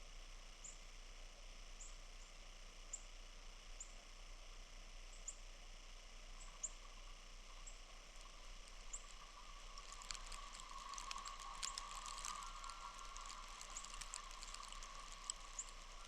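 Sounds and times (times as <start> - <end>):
patter of small ticks: 0.6 - 16.0
outdoor hiss: 6.0 - 16.0
small bird chirping: 6.4 - 16.0.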